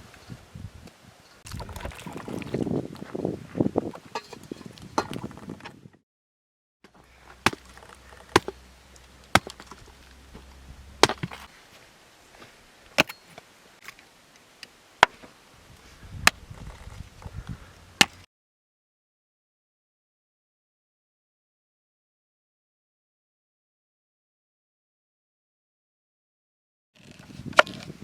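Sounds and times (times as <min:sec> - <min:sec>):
blade chopping: 0:07.2 - 0:08.7, 0:09.3 - 0:11.5.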